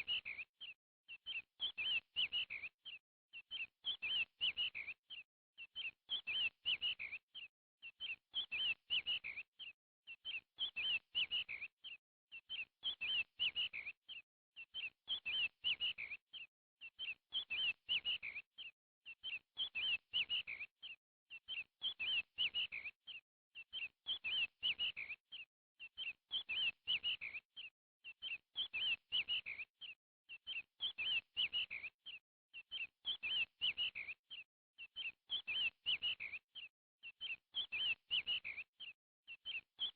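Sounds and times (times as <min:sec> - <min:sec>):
bird chirping: 0:37.1 - 0:39.9.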